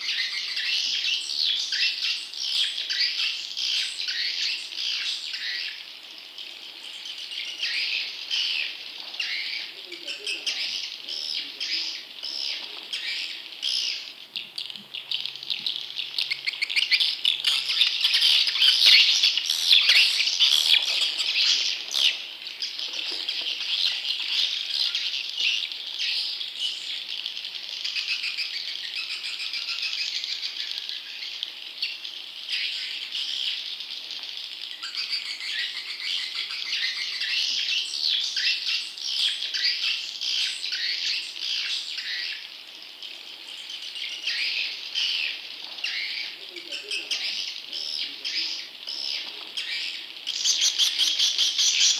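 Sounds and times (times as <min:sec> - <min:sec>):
swiftlet chicks chattering: 0:06.9 - 0:31.2, 0:34.8 - 0:51.9.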